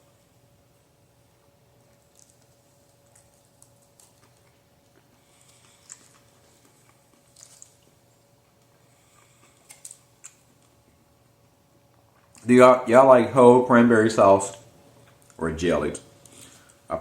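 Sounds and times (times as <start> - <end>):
faint steady hum: 0.0 - 17.0
person chewing: 1.7 - 11.0, 11.8 - 12.5.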